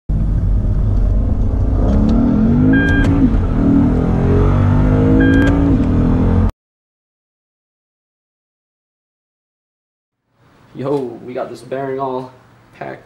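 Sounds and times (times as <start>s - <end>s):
car engine accelerating: 0.1s - 6.5s.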